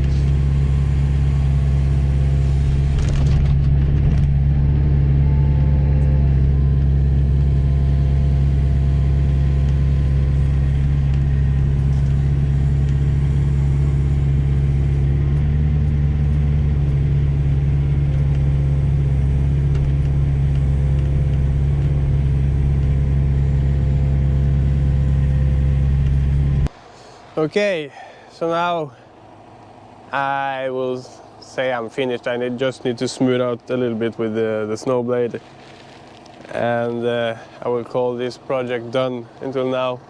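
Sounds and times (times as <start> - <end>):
diesel engine running steadily: 0.0 - 40.0.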